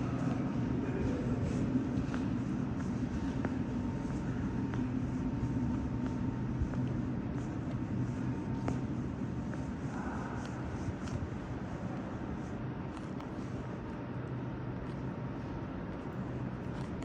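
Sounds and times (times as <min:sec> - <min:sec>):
metro train rumbling: 0:00.0 - 0:13.0
faint steady whine: 0:00.0 - 0:17.0.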